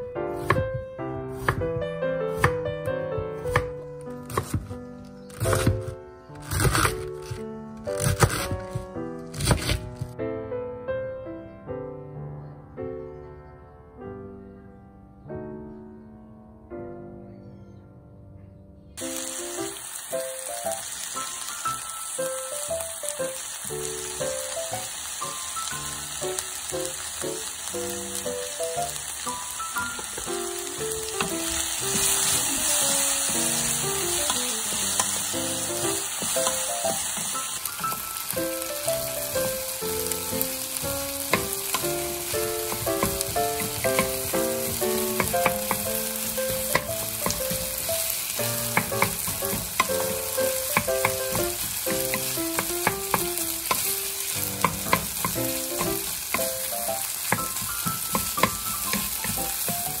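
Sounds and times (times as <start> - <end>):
light melody: 0.0 - 60.0
vegetables sizzling in frying pan: 19.0 - 60.0
spatula scraping and tapping pan: 41.3 - 53.9, 54.6 - 56.6, 57.2 - 60.0.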